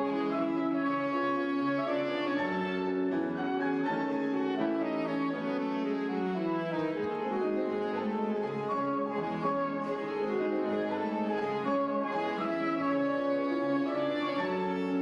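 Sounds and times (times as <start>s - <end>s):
piano accompaniment: 0.0s - 15.0s
saxophones playing waltz melody: 0.0s - 15.0s.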